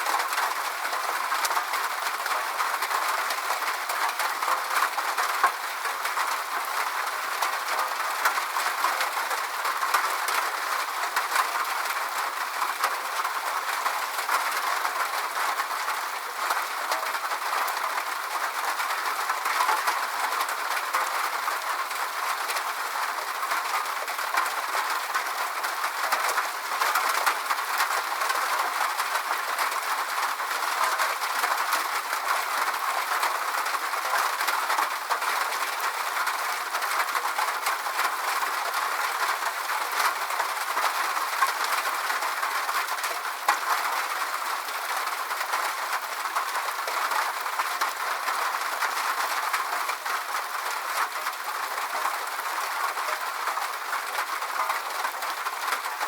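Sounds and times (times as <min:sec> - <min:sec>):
raindrops pattering: 0:00.1 - 0:56.0.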